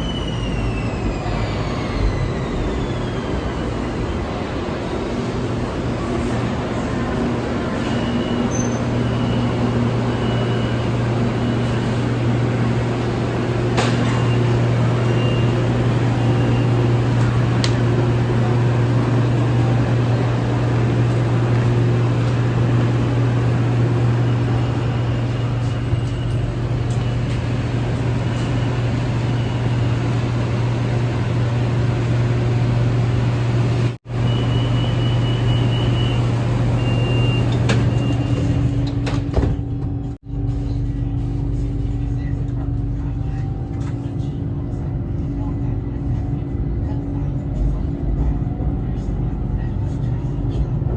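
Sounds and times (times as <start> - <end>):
train carriage hum: 0.0 - 50.9.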